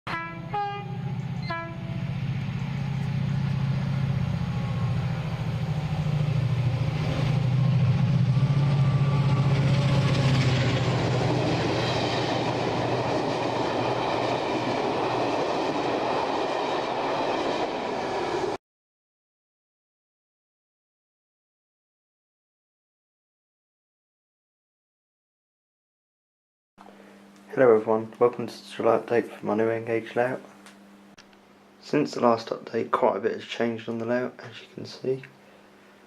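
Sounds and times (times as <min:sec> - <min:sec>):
locomotive horn: 0:00.1 - 0:06.7
locomotive engine drone: 0:00.1 - 0:18.6.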